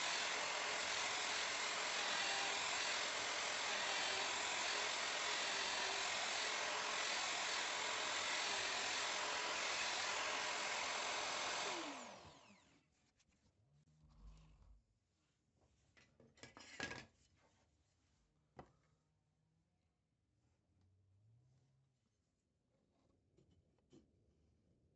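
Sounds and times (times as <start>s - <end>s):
electric router motor: 0.0s - 12.8s.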